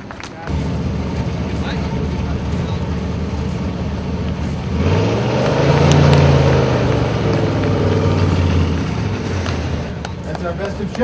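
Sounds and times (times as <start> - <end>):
car engine revving: 0.5 - 11.0.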